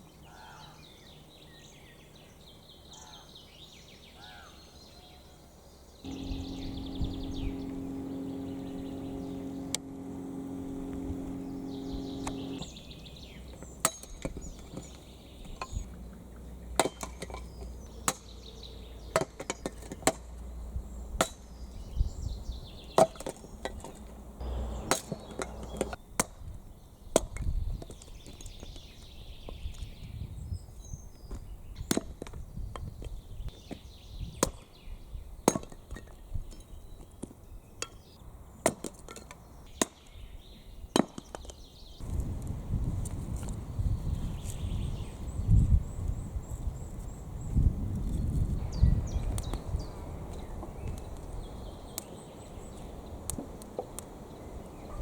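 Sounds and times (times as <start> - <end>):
birds chirping: 6.0 - 16.8, 24.4 - 26.0
steady humming tone: 6.1 - 14.9, 24.2 - 26.0.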